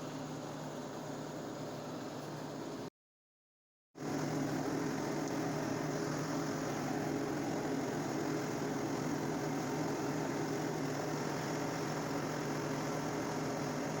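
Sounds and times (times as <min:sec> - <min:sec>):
tractor diesel engine running: 0:04.0 - 0:14.0.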